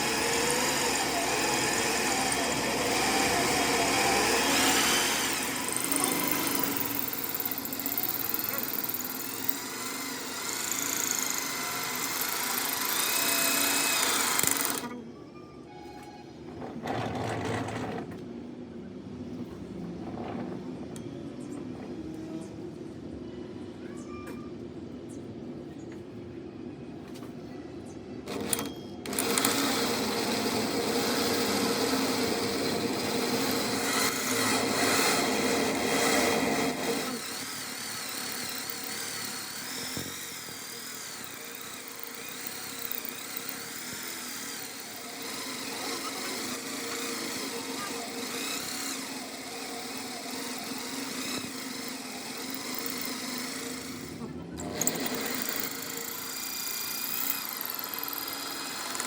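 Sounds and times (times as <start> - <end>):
power tool running: 0.0 - 15.0, 28.3 - 59.0.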